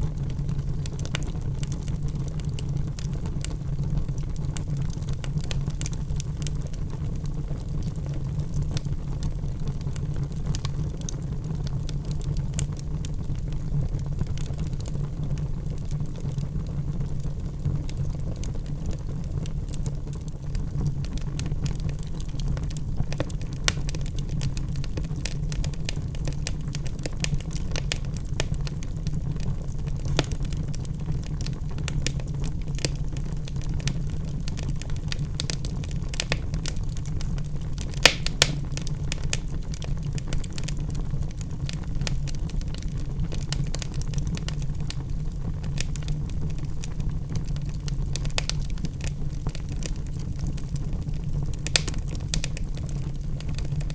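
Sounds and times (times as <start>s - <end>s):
logs crackling in fireplace: 0.0s - 53.9s.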